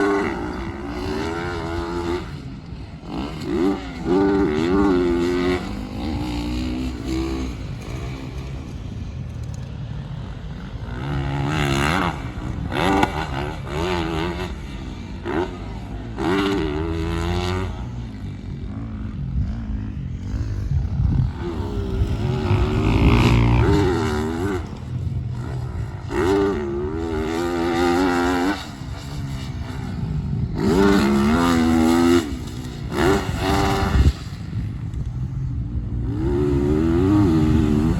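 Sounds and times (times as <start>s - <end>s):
motocross bike engine revving: 0.0s - 37.9s.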